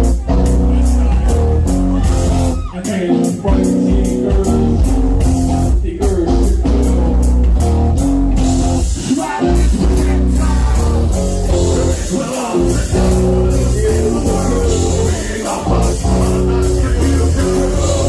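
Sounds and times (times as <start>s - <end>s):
metal band playing: 0.0s - 18.0s
person singing: 1.1s - 5.1s, 9.0s - 18.0s.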